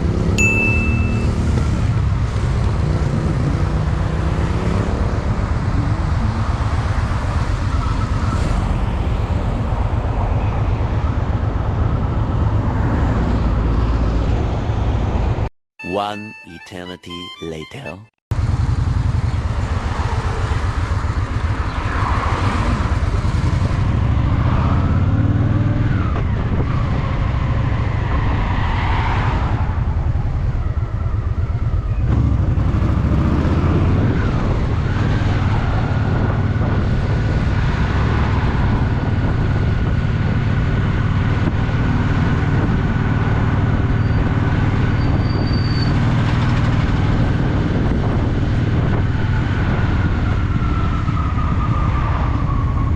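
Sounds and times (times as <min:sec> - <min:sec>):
road noise: 0:00.0 - 0:16.4, 0:18.3 - 0:52.9
motorcycle engine revving: 0:01.0 - 0:08.8, 0:18.3 - 0:27.9, 0:29.7 - 0:45.2.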